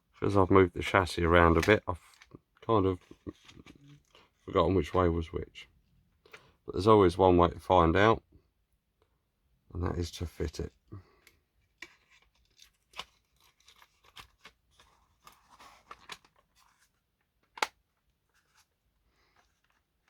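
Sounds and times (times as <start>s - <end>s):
plastic clicks and rustles: 11.1s - 20.0s.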